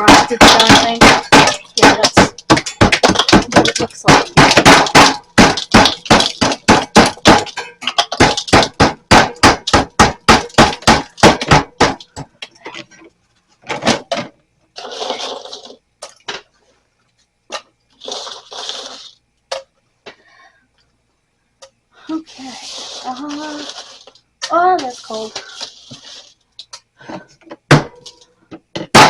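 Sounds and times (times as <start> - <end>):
scraper striking ice: 0.0 - 12.0, 23.1 - 26.3
ice scraping and crunching: 14.8 - 15.8, 18.0 - 19.1, 22.4 - 24.2, 24.8 - 26.3.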